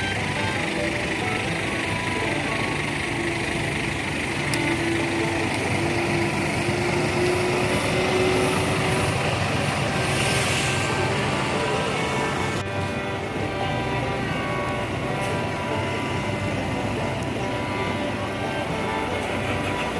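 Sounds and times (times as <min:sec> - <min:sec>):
bus engine running: 0:00.0 - 0:19.9.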